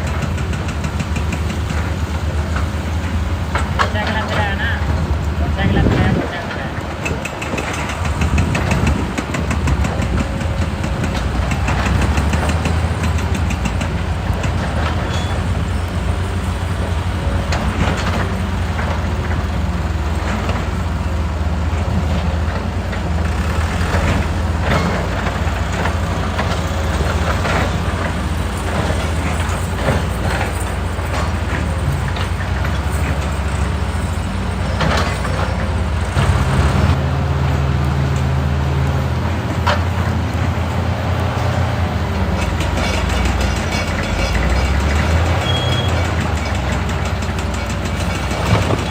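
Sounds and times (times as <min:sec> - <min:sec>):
excavator diesel engine: 0:00.0 - 0:48.9
rock and steel clattering: 0:05.9 - 0:37.0.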